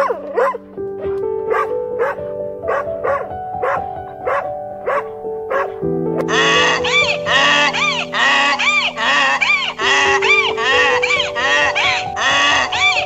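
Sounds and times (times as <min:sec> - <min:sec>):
dog barking: 0:00.0 - 0:00.6, 0:01.5 - 0:05.8
soft piano music: 0:00.0 - 0:13.0.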